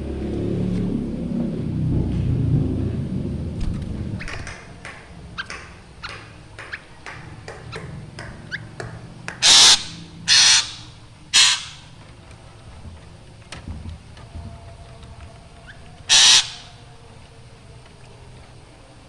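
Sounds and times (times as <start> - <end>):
bird calling sharp notes: 9.4 - 12.0, 16.1 - 16.8
bird harsh calls: 9.4 - 12.0, 16.1 - 16.8.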